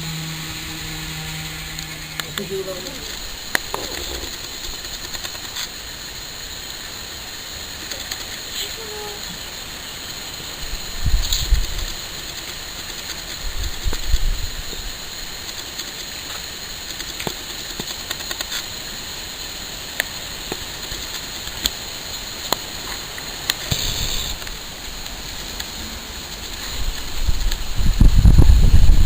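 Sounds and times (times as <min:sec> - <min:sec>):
rain hiss: 0:00.0 - 0:29.0
wind buffeting microphone: 0:26.7 - 0:29.0.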